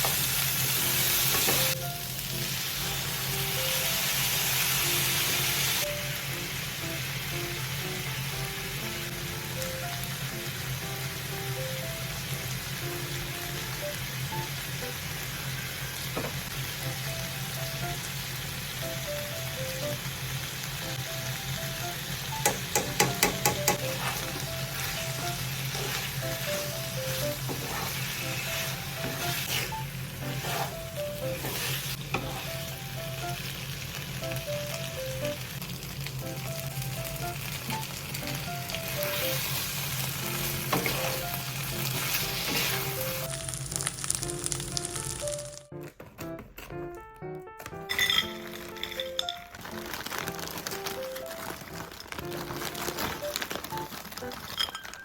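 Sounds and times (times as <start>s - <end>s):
food sizzling in a pan: 0.0s - 45.6s
utensil stirring: 22.4s - 32.6s, 40.4s - 43.2s.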